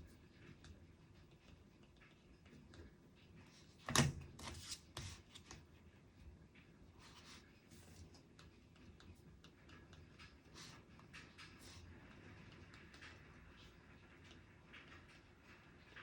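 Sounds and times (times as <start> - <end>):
clicks and rustles of paper: 0.4 - 5.7.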